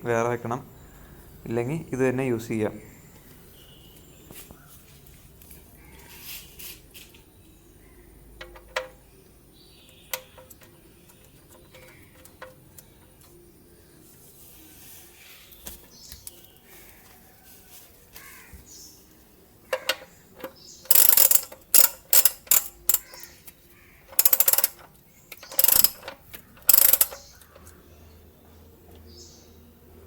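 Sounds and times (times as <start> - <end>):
ratchet wrench clicking: 19.7 - 23.4, 24.0 - 27.7.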